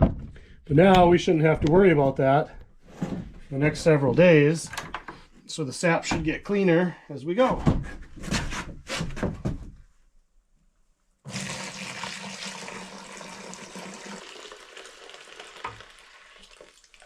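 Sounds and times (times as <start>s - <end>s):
liquid pouring from a bucket: 11.3s - 17.0s.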